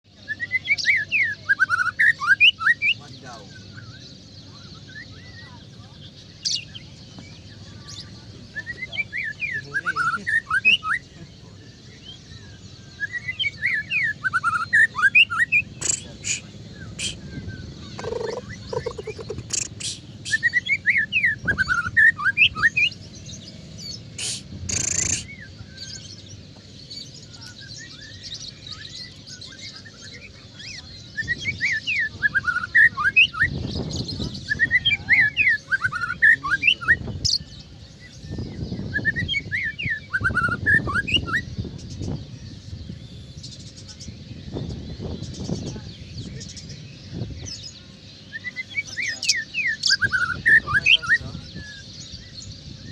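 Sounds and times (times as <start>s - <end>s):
bird singing whistled phrases: 0.1s - 5.8s, 7.5s - 11.0s, 12.0s - 23.0s, 24.2s - 26.2s, 27.2s - 37.5s, 38.1s - 42.1s, 47.4s - 52.9s
low steady background hum: 0.1s - 52.9s.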